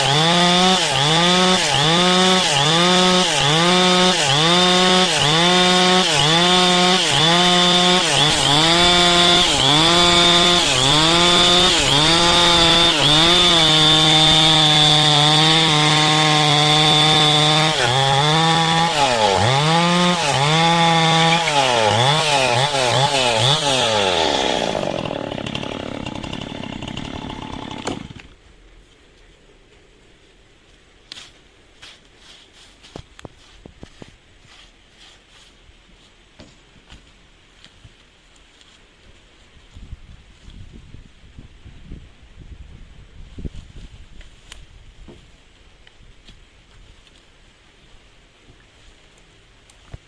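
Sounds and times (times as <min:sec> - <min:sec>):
chainsaw cutting wood: 0:00.0 - 0:28.4.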